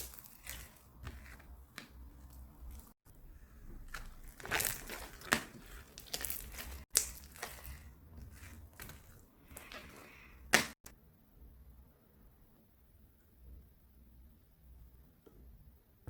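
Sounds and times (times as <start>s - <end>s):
crinkling and rustling: 0.0s - 10.9s.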